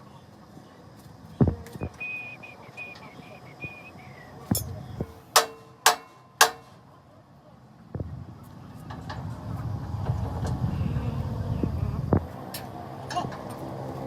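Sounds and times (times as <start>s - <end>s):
high wavering chirping tone: 1.4s - 5.2s
sharp strikes on metal: 4.5s - 6.8s.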